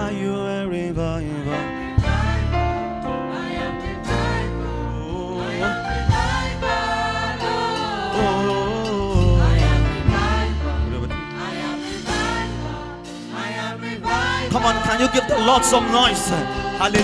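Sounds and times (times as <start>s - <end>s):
choir singing gospel song: 0.0s - 17.0s
band accompaniment: 2.0s - 17.0s
drum hits: 6.0s - 13.5s.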